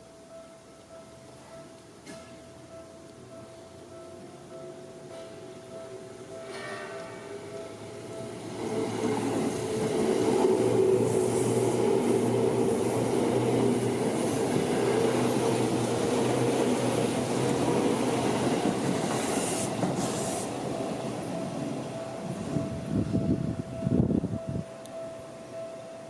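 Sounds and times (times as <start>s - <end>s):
train wheels rumbling on rails: 6.4s - 24.6s
train motor hum: 7.3s - 24.1s.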